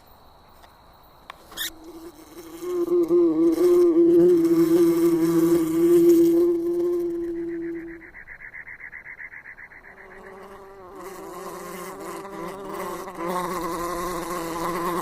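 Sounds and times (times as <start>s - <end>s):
steady buzzing hum: 1.4s - 8.2s.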